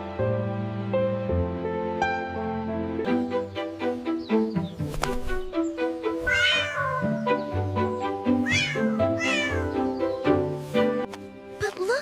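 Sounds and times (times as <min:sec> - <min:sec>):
gentle background music: 0:00.0 - 0:12.0
cat meowing: 0:06.2 - 0:07.2, 0:08.4 - 0:09.8.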